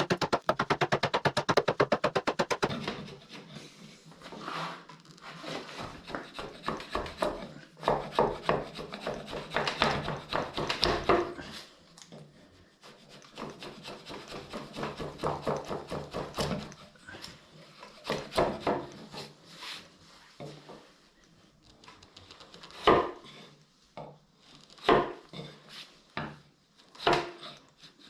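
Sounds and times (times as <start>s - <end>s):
rasping strokes on wood: 0.0s - 3.6s, 4.2s - 11.6s, 12.8s - 19.4s.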